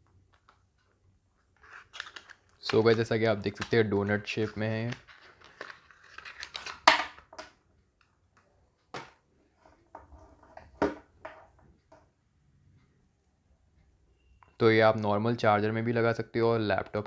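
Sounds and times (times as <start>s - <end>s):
plastic packaging crinkling: 1.6s - 7.2s.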